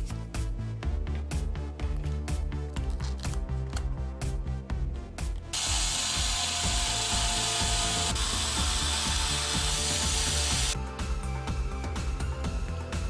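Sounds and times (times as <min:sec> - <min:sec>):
cordless drill motor running: 0:05.6 - 0:10.8.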